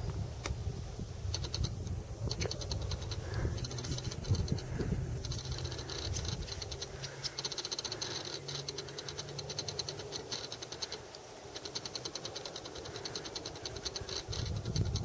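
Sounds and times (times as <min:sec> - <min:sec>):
distant aircraft engine drone: 0:00.0 - 0:15.0
insects chirping: 0:00.0 - 0:15.0.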